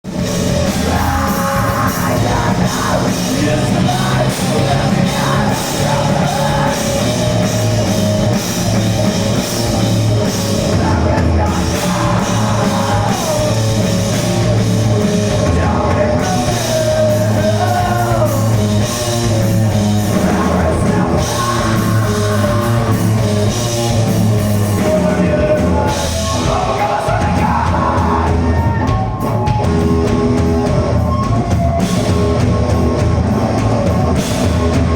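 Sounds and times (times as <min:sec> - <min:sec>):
bass guitar: 0:00.0 - 0:34.9
drum kit: 0:00.0 - 0:34.9
heavy rock music: 0:00.0 - 0:34.9
person singing: 0:00.6 - 0:07.6, 0:10.6 - 0:14.1, 0:15.3 - 0:18.8, 0:20.1 - 0:23.3, 0:24.7 - 0:29.2.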